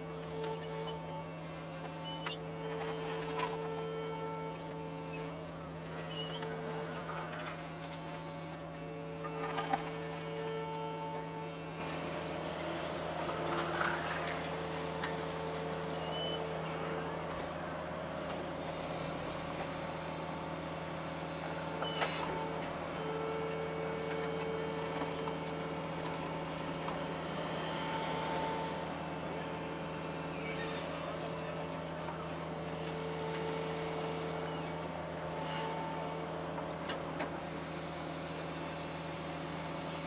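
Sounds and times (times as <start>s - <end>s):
diesel engine running: 10.9s - 40.0s.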